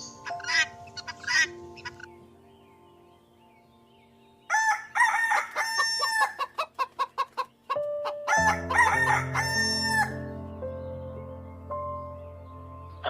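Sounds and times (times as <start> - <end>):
rooster crowing: 4.5 - 6.6, 8.3 - 10.3.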